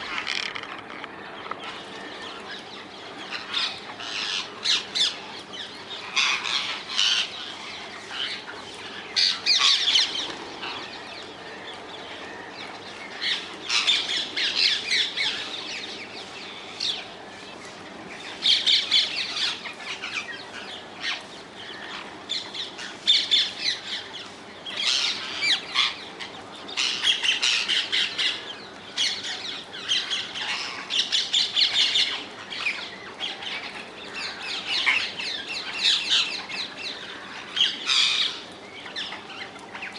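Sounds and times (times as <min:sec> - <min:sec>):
parakeets screeching: 0:00.0 - 0:12.5, 0:13.1 - 0:17.1, 0:18.2 - 0:39.9.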